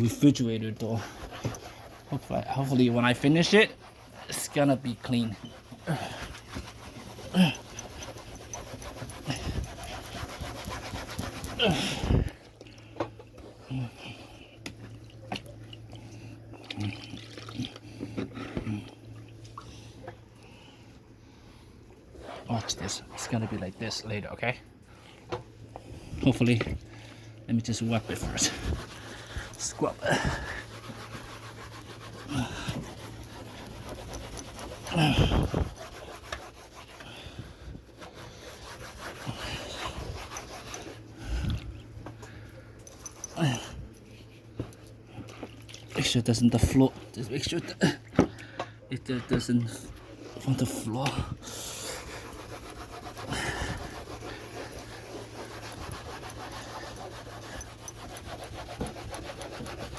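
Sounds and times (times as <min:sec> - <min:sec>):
towel scrubbing refrigerator door: 0:00.0 - 0:12.3, 0:27.5 - 0:41.4, 0:49.1 - 0:59.9.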